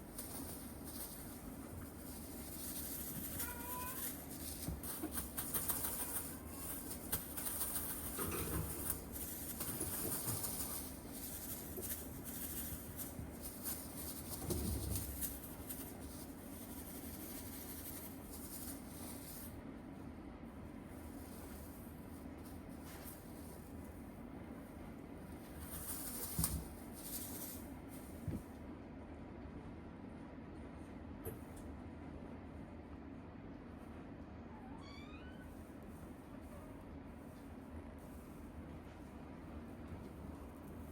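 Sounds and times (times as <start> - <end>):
soft rustling: 0.0 - 19.6, 20.8 - 24.1, 25.2 - 28.5
kitten mewing: 3.2 - 4.2.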